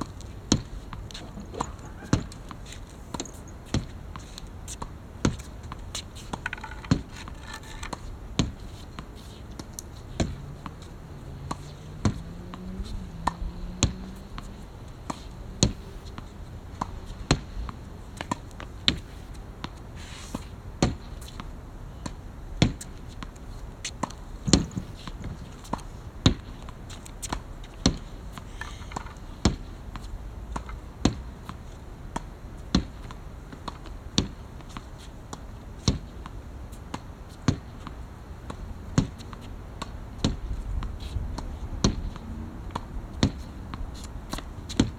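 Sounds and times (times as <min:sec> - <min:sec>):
racket hitting shuttlecock: 0:00.0 - 0:10.8, 0:22.0 - 0:31.6, 0:41.0 - 0:44.9.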